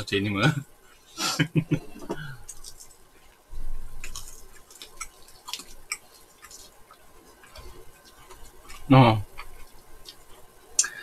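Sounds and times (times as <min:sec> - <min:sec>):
chewing crunchy food: 0:02.4 - 0:11.0.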